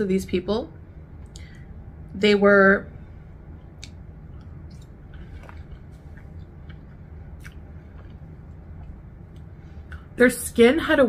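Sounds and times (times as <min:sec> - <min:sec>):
steady low hum: 0:00.0 - 0:11.0
wet mouth clicks chewing: 0:03.8 - 0:10.1.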